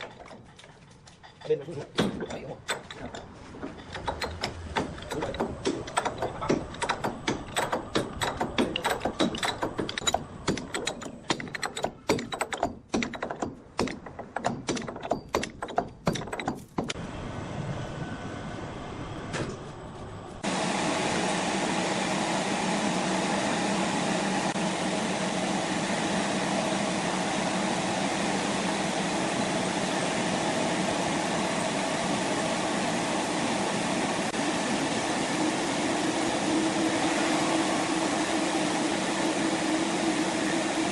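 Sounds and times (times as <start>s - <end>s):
machinery clattering knocks: 1.8s - 17.0s
steady machine drone: 2.3s - 19.2s, 20.3s - 40.9s.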